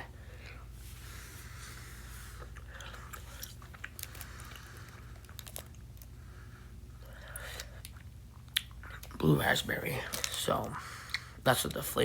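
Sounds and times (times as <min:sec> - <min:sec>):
person chewing candy: 0:02.3 - 0:06.2, 0:06.9 - 0:09.3.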